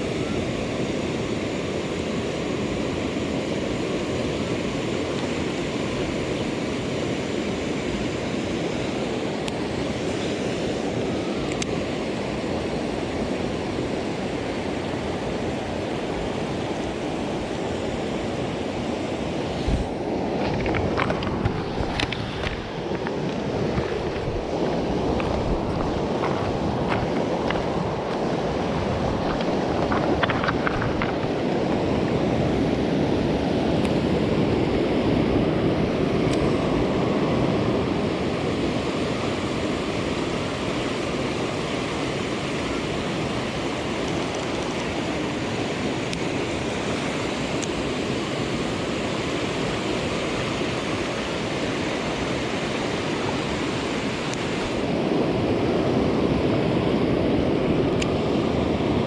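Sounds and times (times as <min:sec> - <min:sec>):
stream rushing: 0:00.0 - 0:59.0.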